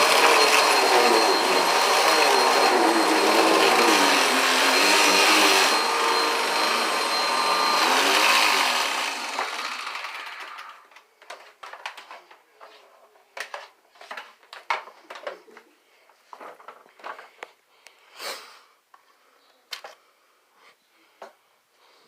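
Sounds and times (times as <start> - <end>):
vacuum cleaner running: 0.0 - 10.8.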